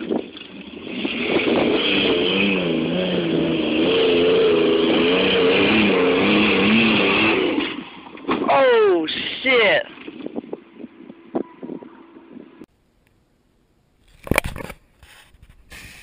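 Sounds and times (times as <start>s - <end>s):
engine revving hard: 0.6s - 7.8s.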